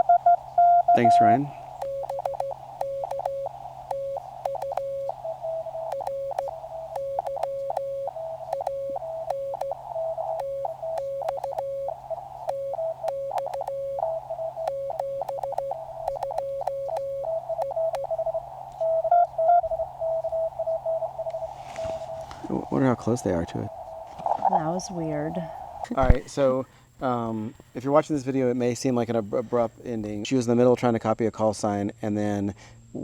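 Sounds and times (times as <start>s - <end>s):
morse code tones: 0.0s - 26.2s
faint static clicks: 0.0s - 26.4s
low hum: 0.0s - 26.6s.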